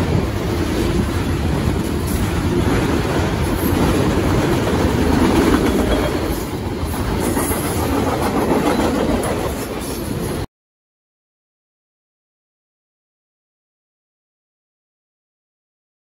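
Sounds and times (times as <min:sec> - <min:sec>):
freight train rolling past: 0:00.0 - 0:10.5
train wheels on rails: 0:00.0 - 0:10.5.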